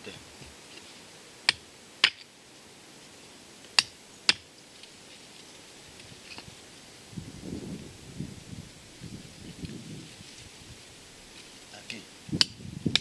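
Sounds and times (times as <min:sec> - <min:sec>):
rustling: 0:00.0 - 0:01.3, 0:04.6 - 0:12.3.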